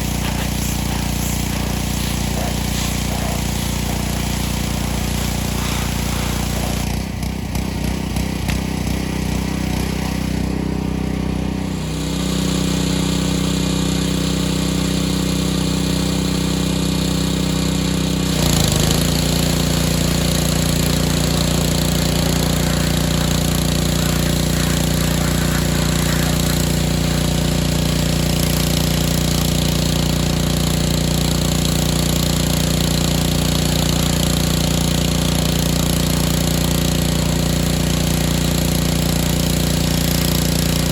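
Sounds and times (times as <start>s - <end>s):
water spray hiss: 0.0s - 7.0s, 18.3s - 36.5s
pressure washer engine running: 0.0s - 40.9s.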